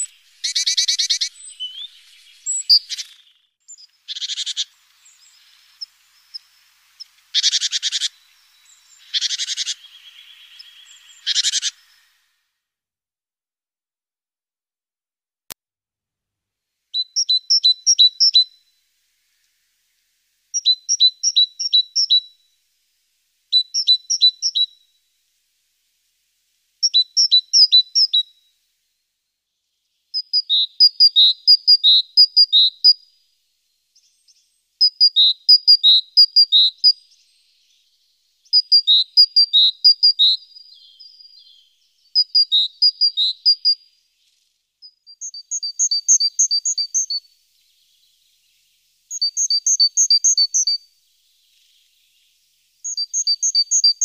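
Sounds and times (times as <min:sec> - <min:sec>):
small bird chirping: 0:00.0 - 0:12.4, 0:16.9 - 0:22.6, 0:23.4 - 0:25.1, 0:26.8 - 0:28.6, 0:29.4 - 0:54.0.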